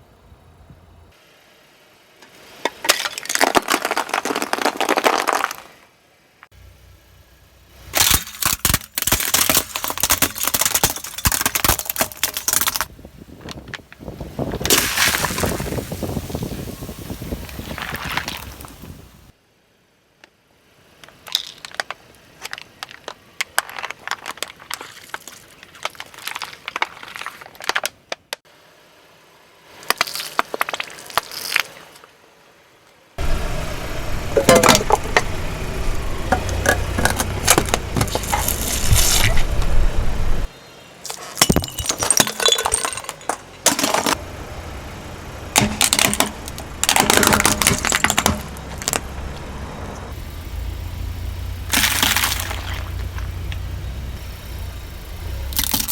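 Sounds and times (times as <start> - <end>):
low engine rumble: 0.0 - 2.7, 6.0 - 8.0, 32.0 - 41.0, 42.6 - 55.9
tyres crushing brittle objects: 2.6 - 5.8, 7.9 - 15.9, 17.4 - 19.0, 21.0 - 28.4, 29.8 - 32.0, 36.3 - 39.7, 41.0 - 44.2, 45.5 - 49.4, 51.6 - 54.1, 55.2 - 55.9.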